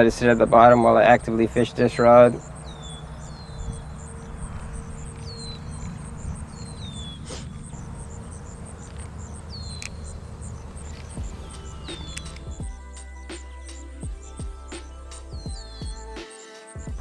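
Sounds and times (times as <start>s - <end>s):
high pulsed insect chirping: 0.0s - 12.6s
low rumble: 2.4s - 12.6s.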